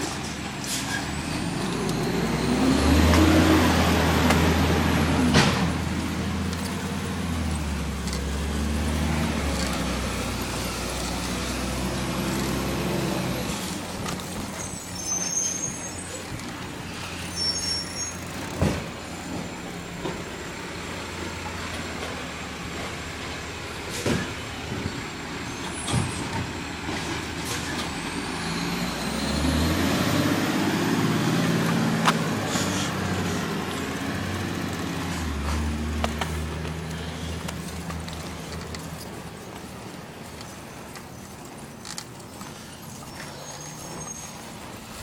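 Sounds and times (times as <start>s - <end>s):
garbage truck engine revving: 0.0s - 45.0s.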